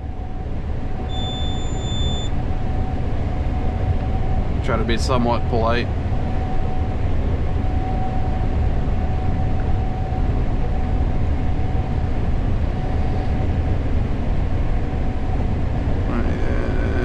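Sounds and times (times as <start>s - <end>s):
combine harvester running: 0.0s - 7.8s.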